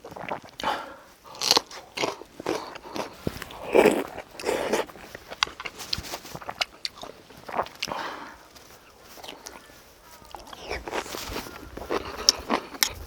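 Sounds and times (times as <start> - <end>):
person chewing: 0.0 - 13.0.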